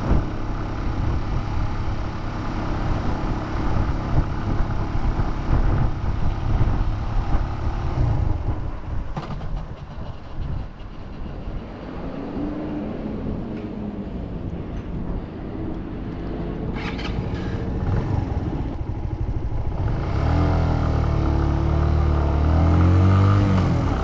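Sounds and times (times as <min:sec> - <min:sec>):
motorcycle engine running: 0:00.0 - 0:10.9, 0:16.8 - 0:24.0
wind and road noise rumble: 0:00.0 - 0:24.0.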